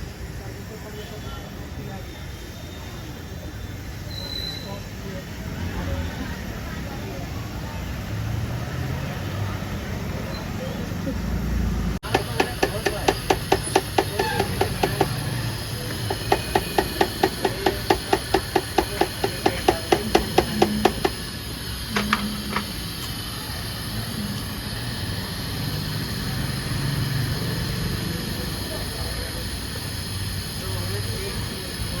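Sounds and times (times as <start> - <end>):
clicks: 12.0 - 21.3, 21.9 - 23.2.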